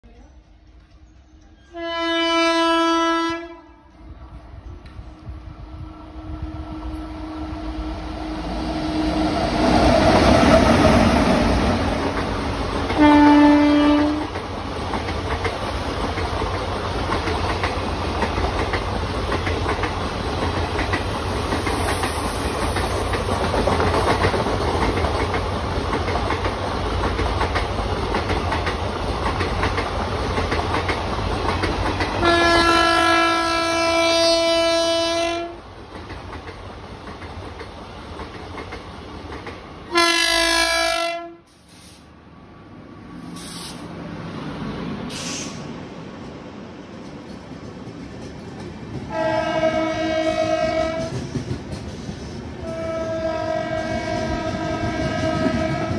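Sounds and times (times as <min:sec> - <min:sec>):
freight train rumble and wheel clatter: 0:00.0 - 0:55.9
short locomotive horn blast: 0:01.5 - 0:03.9, 0:13.0 - 0:14.3, 0:32.2 - 0:35.6, 0:39.9 - 0:42.0, 0:49.1 - 0:51.2, 0:52.6 - 0:55.9
long locomotive horn: 0:01.5 - 0:04.1, 0:05.3 - 0:10.8, 0:12.9 - 0:14.4, 0:32.2 - 0:35.6, 0:39.9 - 0:42.0, 0:49.1 - 0:51.2, 0:52.6 - 0:55.9.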